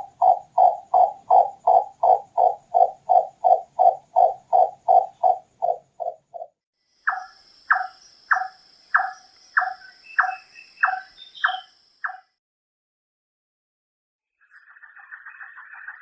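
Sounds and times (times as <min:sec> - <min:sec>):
nightjar knocking call: 0:00.0 - 0:12.4.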